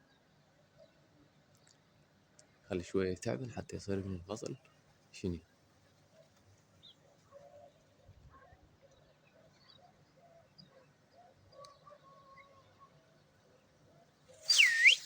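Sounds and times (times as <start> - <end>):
sharp whistle sweeping in pitch: 14.5 - 15.0.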